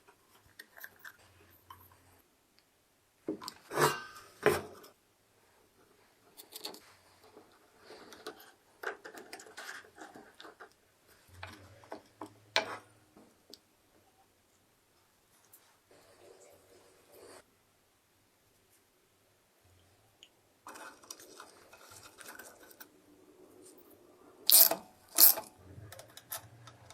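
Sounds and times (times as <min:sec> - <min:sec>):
soft rubbing and scraping: 0:15.3 - 0:17.5, 0:20.7 - 0:24.1.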